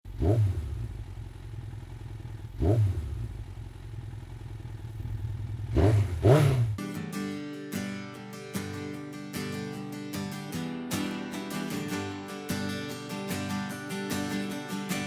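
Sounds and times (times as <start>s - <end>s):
motorcycle engine idling: 0.1s - 6.8s
motorcycle throttle blips: 0.1s - 6.8s.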